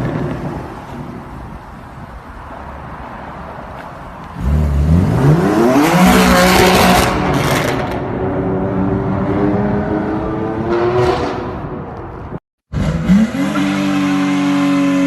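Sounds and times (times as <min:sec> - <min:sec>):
car engine revving: 0:04.4 - 0:11.8, 0:12.7 - 0:15.0.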